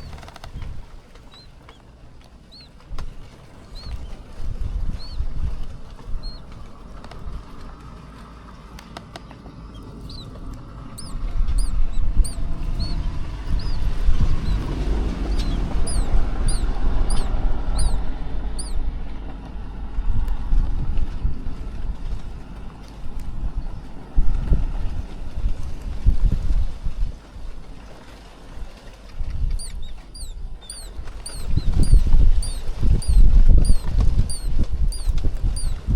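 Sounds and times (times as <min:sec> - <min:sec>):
small bird chirping: 0:00.0 - 0:05.3, 0:06.0 - 0:07.2, 0:09.6 - 0:19.6, 0:29.3 - 0:35.9
wind gusting on microphone: 0:09.8 - 0:27.6, 0:29.2 - 0:35.9.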